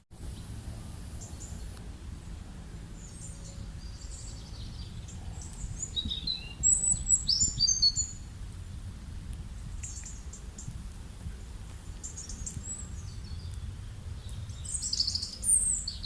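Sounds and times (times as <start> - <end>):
low background rumble: 0.2 - 16.0
birds chirping: 3.0 - 8.3, 11.8 - 16.0.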